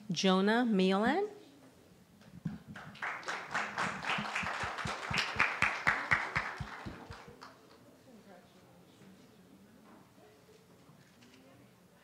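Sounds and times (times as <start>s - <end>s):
people clapping in rhythm: 2.5s - 7.8s.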